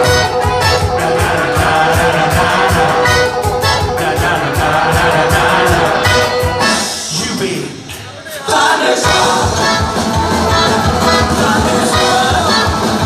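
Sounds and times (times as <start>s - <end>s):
fast steady drum beat: 0.0s - 8.0s, 8.6s - 13.0s
live band playing: 0.0s - 13.0s
person singing: 8.5s - 13.0s.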